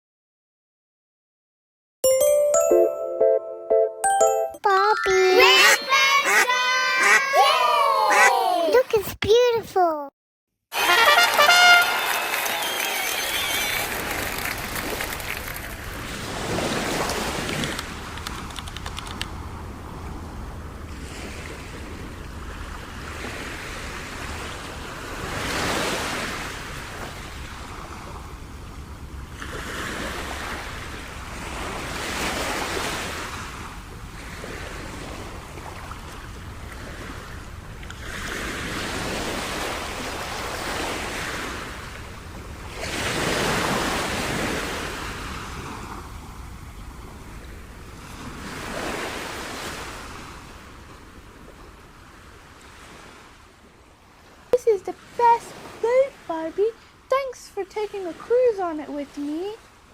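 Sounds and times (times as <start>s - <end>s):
ocean waves washing in: 13.7s - 18.2s, 19.4s - 55.8s.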